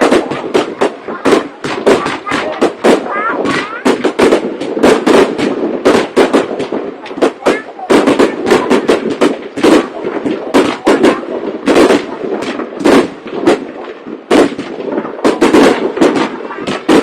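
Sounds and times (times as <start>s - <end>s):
fireworks exploding: 0.0s - 17.0s
rumbling echo: 0.0s - 17.0s.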